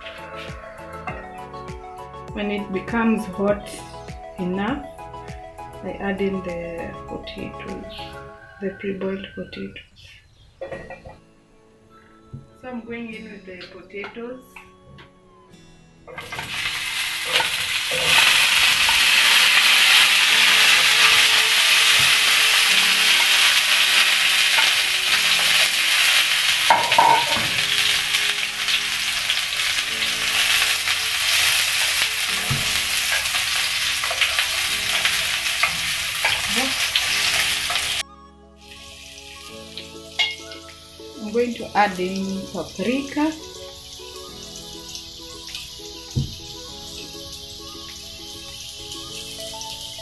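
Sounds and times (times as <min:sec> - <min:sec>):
potatoes sizzling in hot oil: 0:16.1 - 0:38.0, 0:38.6 - 0:50.0.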